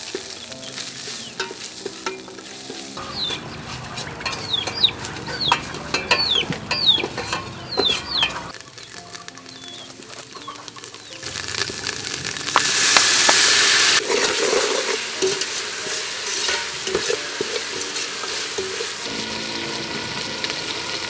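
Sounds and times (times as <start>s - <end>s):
spice paste sizzling in hot oil: 0.0s - 21.0s
metal ladle scraping a pot: 0.1s - 8.6s, 14.0s - 19.2s.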